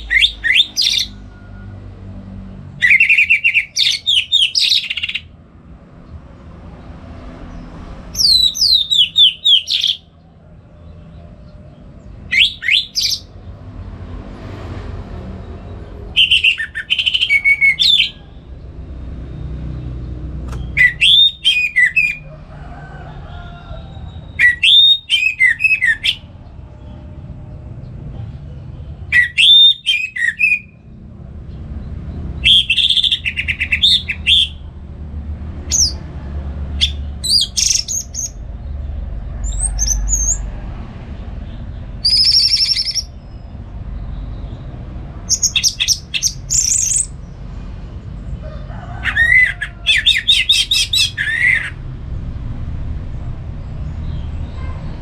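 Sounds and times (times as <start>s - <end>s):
thrush singing: 0.0s - 1.5s, 2.7s - 5.4s, 8.1s - 10.2s, 12.0s - 13.4s, 16.1s - 18.7s, 20.6s - 22.5s, 32.4s - 34.7s, 49.0s - 51.8s
low rumble: 51.7s - 55.0s.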